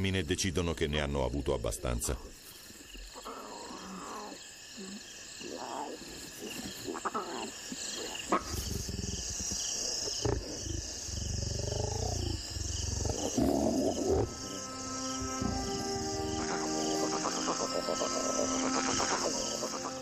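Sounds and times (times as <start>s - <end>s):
lionesses growling and snarling: 3.1s - 20.0s.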